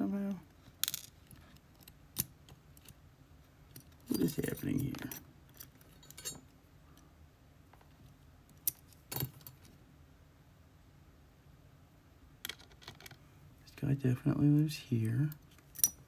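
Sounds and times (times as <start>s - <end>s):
small metal parts clicking: 15.7s - 16.0s.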